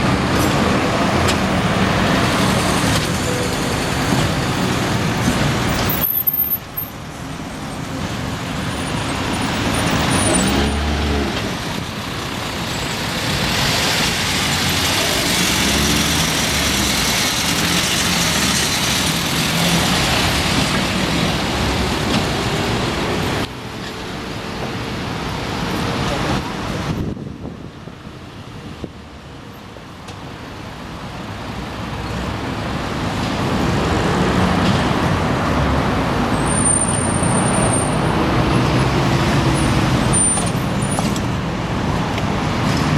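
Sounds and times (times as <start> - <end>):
motor vehicles passing: 7.6 - 23.5.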